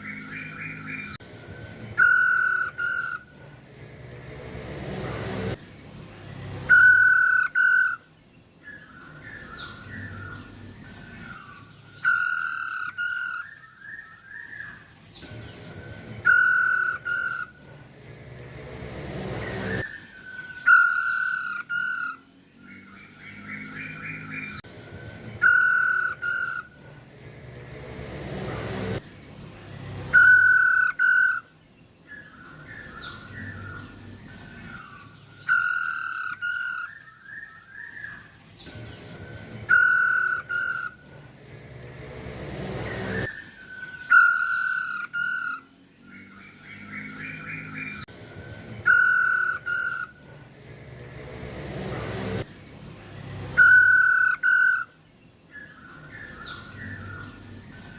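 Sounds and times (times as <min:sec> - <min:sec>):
bird chattering chirps: 0:02.0 - 0:03.2, 0:06.7 - 0:08.0, 0:11.0 - 0:13.7, 0:16.2 - 0:17.5, 0:20.0 - 0:22.2, 0:25.4 - 0:26.8, 0:30.2 - 0:31.5, 0:34.6 - 0:41.0, 0:43.6 - 0:50.2, 0:53.6 - 0:57.4
bird loud repeated call: 0:02.0 - 0:03.4, 0:06.7 - 0:08.1, 0:11.2 - 0:14.8, 0:16.2 - 0:17.6, 0:19.6 - 0:22.3, 0:25.4 - 0:26.8, 0:30.1 - 0:31.5, 0:34.7 - 0:38.3, 0:39.7 - 0:41.1, 0:43.0 - 0:48.1, 0:48.8 - 0:50.3, 0:53.6 - 0:55.0.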